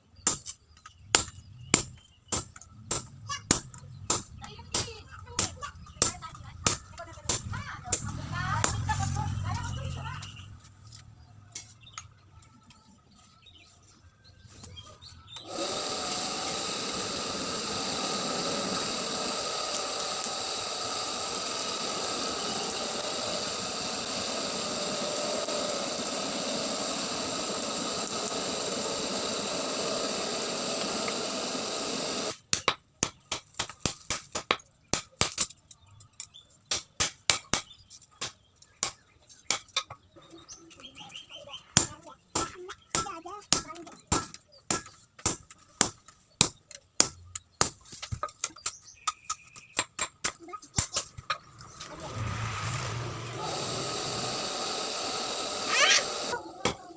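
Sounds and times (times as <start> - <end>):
electric tool whining: 15.3 - 32.5, 51.1 - 56.9.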